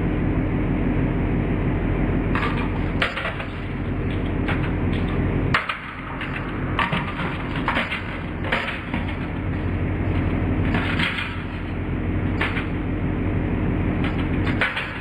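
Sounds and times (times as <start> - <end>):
aluminium cracking and crunching: 2.4 - 12.9, 14.0 - 15.0.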